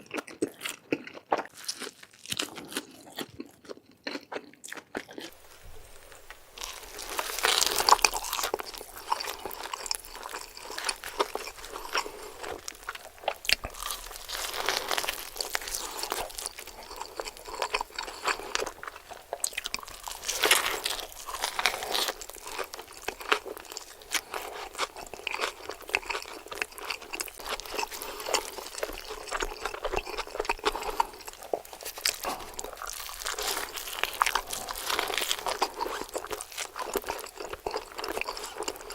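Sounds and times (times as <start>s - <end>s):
crunchy chewing of burger: 0.0s - 38.9s.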